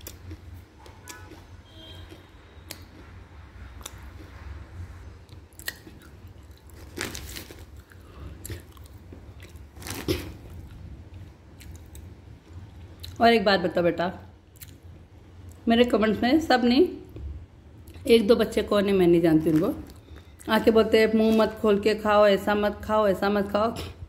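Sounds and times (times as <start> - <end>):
person chewing and crunching: 0.0 - 4.4, 5.2 - 13.2, 14.6 - 14.8, 19.4 - 20.5.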